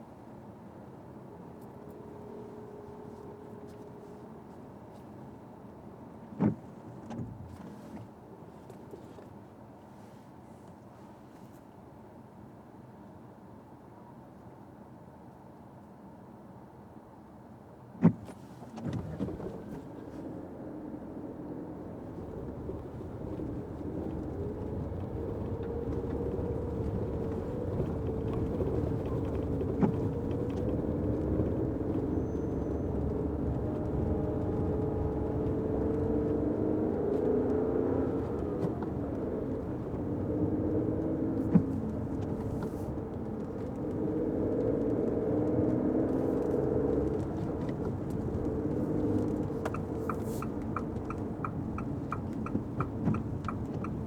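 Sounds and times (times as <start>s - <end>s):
road and tyre rumble: 0.0s - 54.0s
car engine: 18.0s - 54.0s
turn signal ticking: 21.8s - 54.0s.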